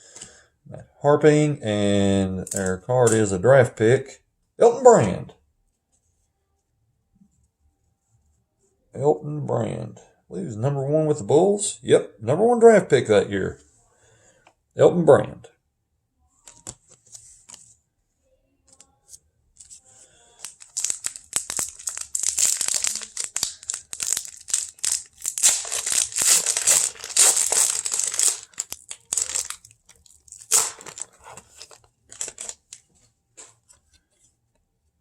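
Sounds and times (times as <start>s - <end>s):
wrapper tearing and crinkling: 20.3s - 32.8s.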